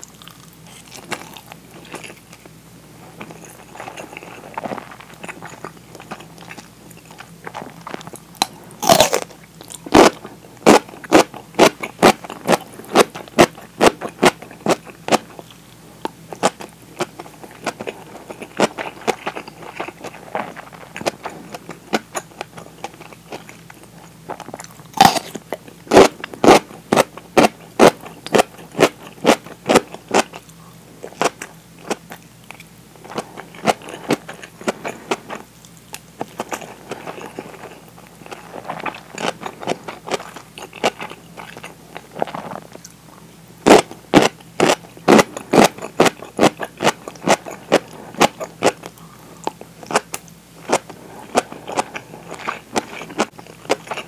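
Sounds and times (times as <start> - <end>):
soft chewing: 0.0 - 54.0
crisp crunching bites: 3.4 - 15.4, 24.3 - 30.4.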